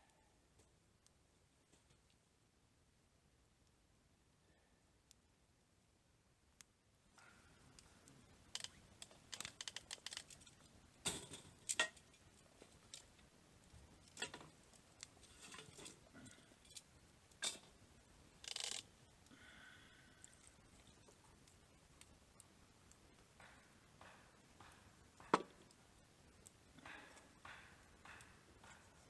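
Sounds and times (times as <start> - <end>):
objects clicking and tapping: 23.1 - 25.8, 26.4 - 29.0
sharp knocks: 23.4 - 25.7.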